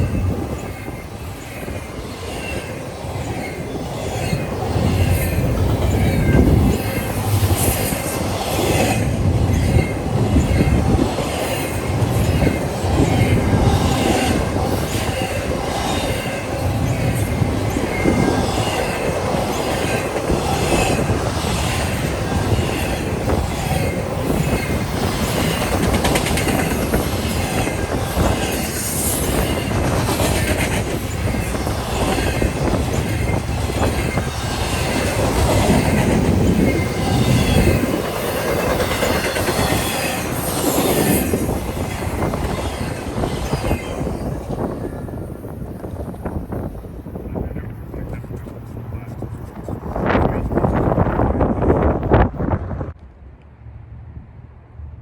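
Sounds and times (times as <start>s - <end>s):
low rumble of train: 0.0s - 55.0s
train wheels clacking over rail joints: 2.4s - 44.7s.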